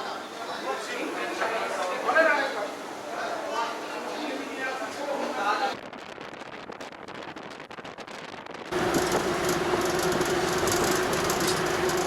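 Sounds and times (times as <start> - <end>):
steady hum: 8.7 - 12.0
train rail rumble: 8.7 - 12.0.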